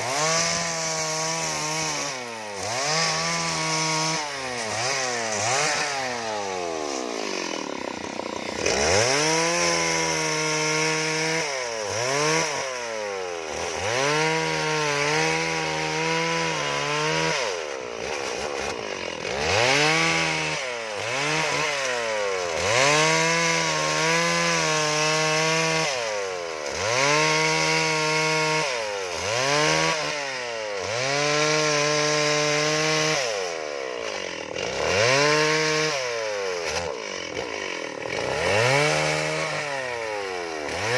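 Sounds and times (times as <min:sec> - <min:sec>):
chainsaw revving into wood: 0:00.0 - 0:40.9.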